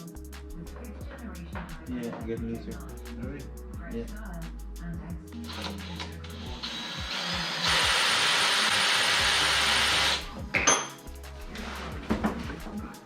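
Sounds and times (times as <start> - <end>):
power tool running: 5.5 - 10.2.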